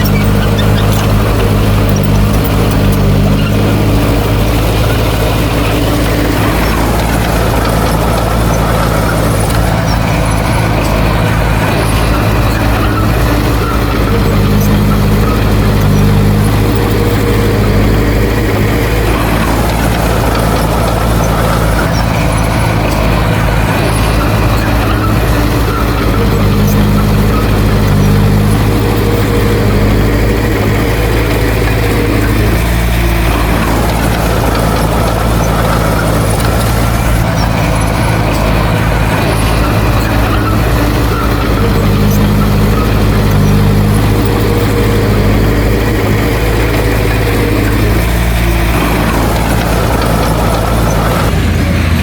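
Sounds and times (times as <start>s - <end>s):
heavy diesel engine running: 0.0s - 52.0s.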